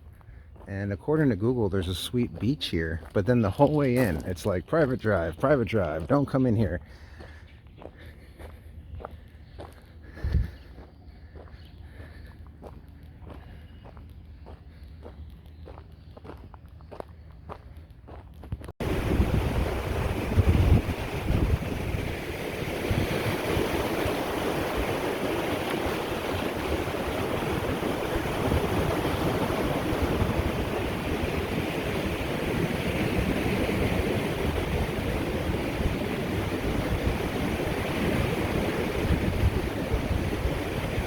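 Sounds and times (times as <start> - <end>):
wind buffeting microphone: 8.9 - 11.5, 18.5 - 41.0
waves washing onto beach: 18.8 - 41.0.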